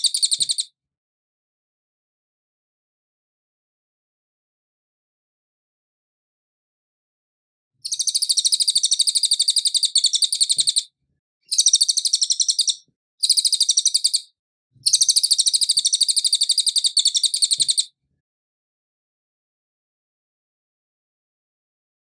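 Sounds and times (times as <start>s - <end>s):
bird chirping rapidly: 0.0s - 0.7s, 7.8s - 10.9s, 11.5s - 17.9s.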